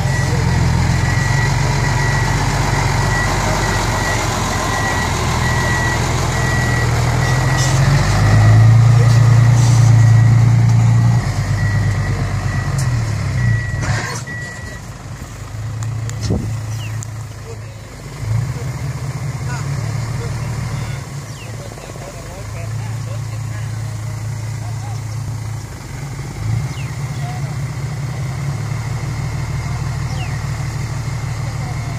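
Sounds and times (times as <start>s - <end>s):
reversing alarm beeping: 0.0s - 14.9s
diesel truck engine running: 0.0s - 31.9s.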